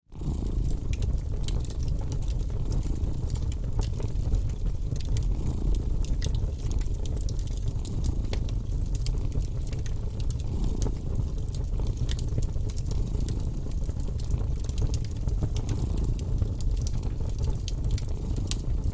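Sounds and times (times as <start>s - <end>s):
fire crackling and popping: 0.1s - 18.9s
cat purring: 0.2s - 18.9s.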